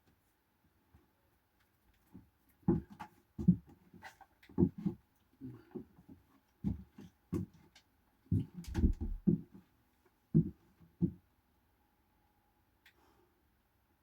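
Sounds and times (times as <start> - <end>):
dull thumps and knocks: 8.3 - 9.6.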